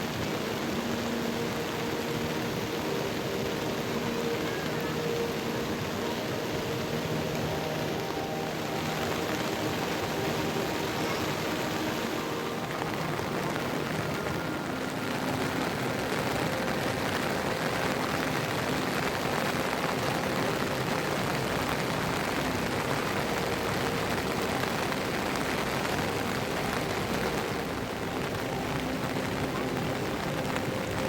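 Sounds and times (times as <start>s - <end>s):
heavy rain falling: 0.0s - 31.0s.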